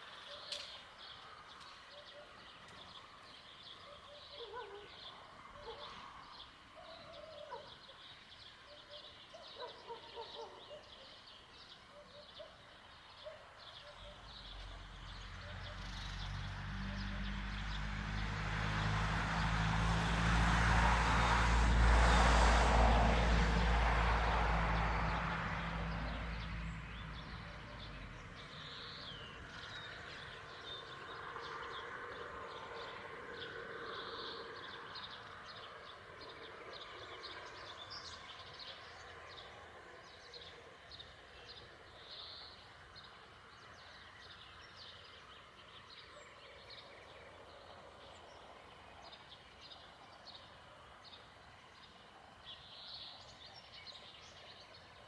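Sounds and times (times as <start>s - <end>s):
passing vehicle rumble: 14.1s - 35.0s.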